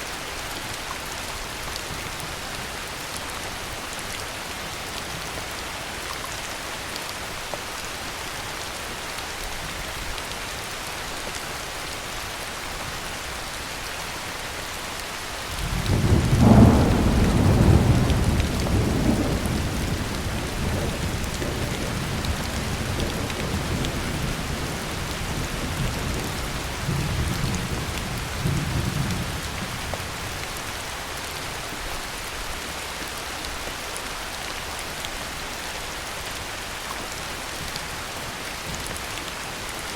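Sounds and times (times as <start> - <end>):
heavy rain falling: 0.0 - 39.9
rolling thunder: 15.6 - 29.8.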